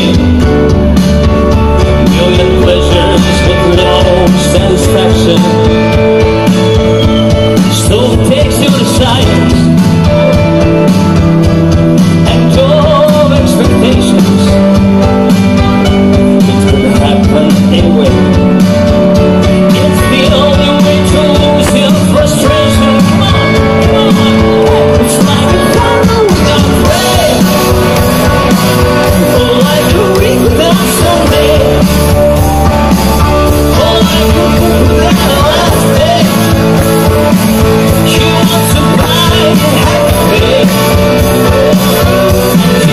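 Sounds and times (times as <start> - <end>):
drum beats: 0.0 - 42.9
guitars: 0.0 - 42.9
live rock band playing: 0.0 - 42.9
person singing: 1.5 - 11.1, 12.0 - 42.9.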